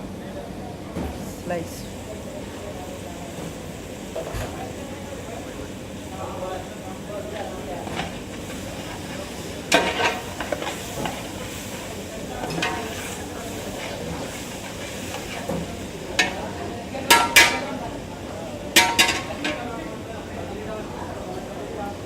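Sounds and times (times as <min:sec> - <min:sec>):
frying hiss: 0:01.2 - 0:22.0
ladle clanking against pot: 0:07.8 - 0:13.2, 0:13.8 - 0:17.8, 0:18.7 - 0:19.8
ladle scraping a pot: 0:07.8 - 0:16.4.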